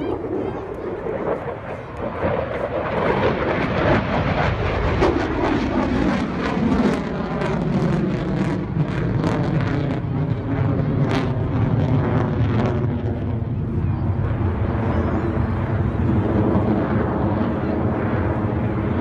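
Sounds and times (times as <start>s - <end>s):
crackling jet engine rumble: 0.0s - 19.0s.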